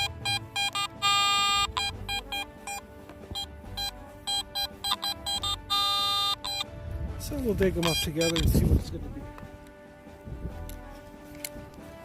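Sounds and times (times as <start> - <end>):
metal detector beeps: 0.0 - 6.7, 7.8 - 8.6
metal detector held tone: 0.0 - 6.7, 7.8 - 8.6.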